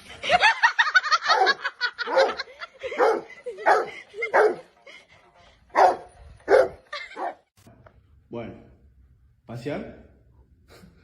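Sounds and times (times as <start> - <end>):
dog barking and whining: 1.3 - 4.7, 5.7 - 7.4.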